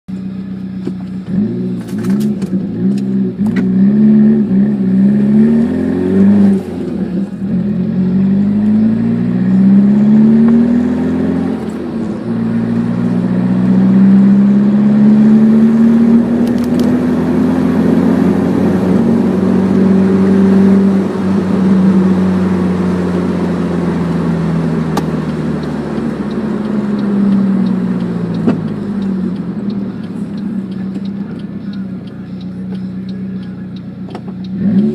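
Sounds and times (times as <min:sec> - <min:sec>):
car engine accelerating through gears: 0:00.1 - 0:34.9.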